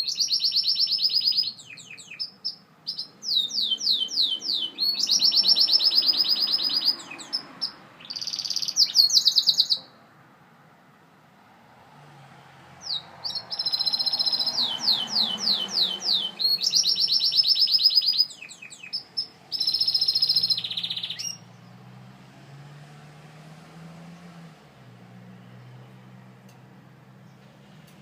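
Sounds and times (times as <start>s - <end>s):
canary singing trills: 0.0s - 10.0s, 12.8s - 21.9s.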